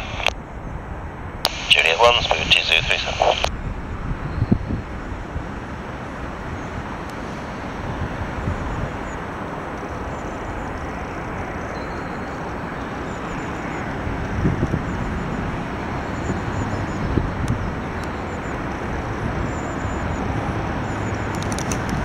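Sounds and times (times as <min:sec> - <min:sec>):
jet engines roaring at takeoff: 0:00.0 - 0:00.3, 0:01.5 - 0:03.5.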